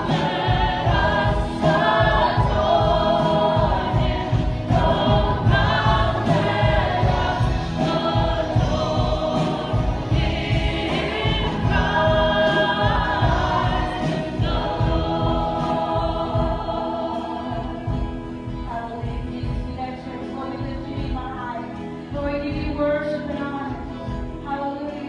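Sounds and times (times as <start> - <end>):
choir singing over instruments: 0.0 - 19.6.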